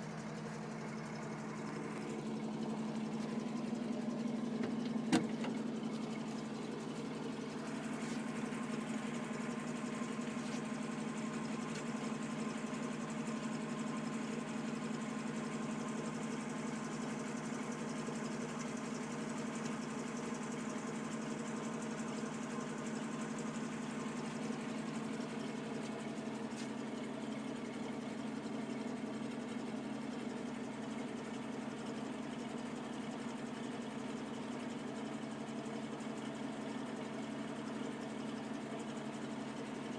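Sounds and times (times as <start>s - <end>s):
petrol engine idling: 0.0s - 39.9s.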